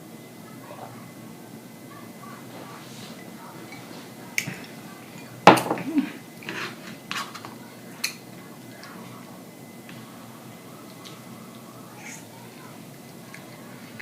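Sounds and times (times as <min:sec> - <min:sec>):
tableware clinking: 0:05.2 - 0:07.3.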